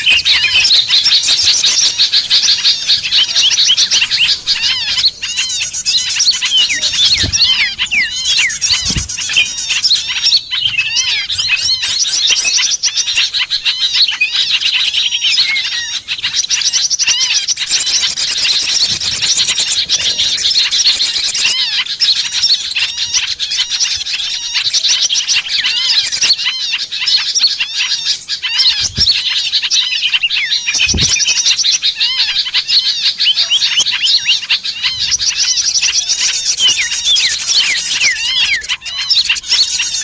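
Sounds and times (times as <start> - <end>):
small birds chirping and twittering: 0.0 - 40.0
low thuds: 6.8 - 7.9.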